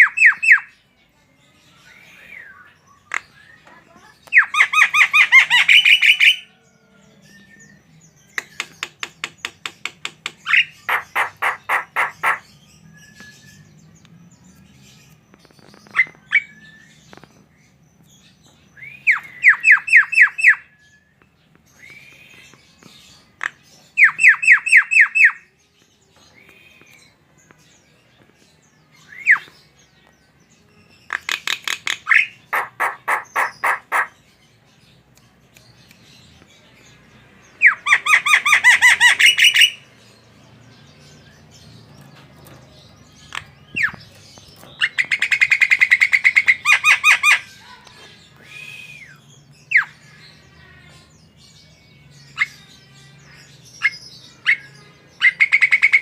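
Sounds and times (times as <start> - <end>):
bird singing harsh notes: 10.4 - 13.7
bird whistles: 48.4 - 49.2.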